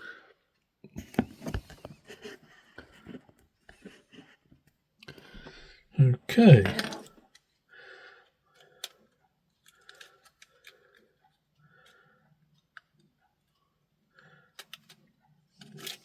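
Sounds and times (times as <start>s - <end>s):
small plastic parts clicking: 8.5s - 13.2s, 14.5s - 16.0s.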